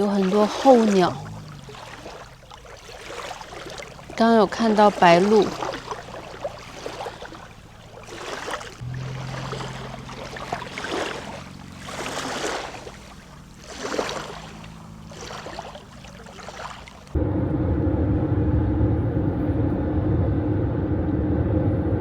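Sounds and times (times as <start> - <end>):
low steady hum: 0.0 - 8.0, 8.8 - 13.7, 17.0 - 22.0
small waves lapping on stony shore: 0.0 - 17.2.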